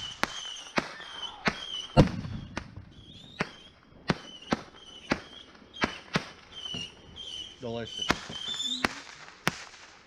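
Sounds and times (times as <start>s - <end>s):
firecrackers popping: 0.0s - 10.0s.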